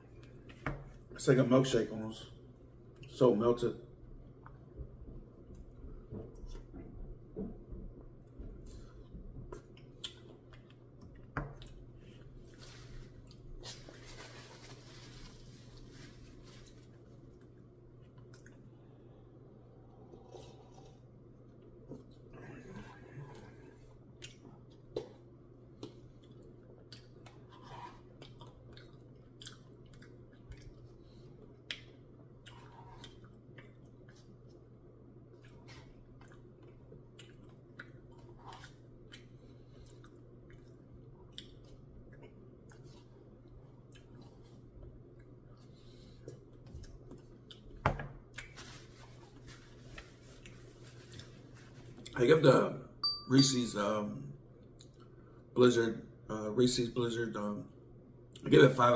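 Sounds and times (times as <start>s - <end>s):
person chewing ice cream: 19.6s - 48.6s.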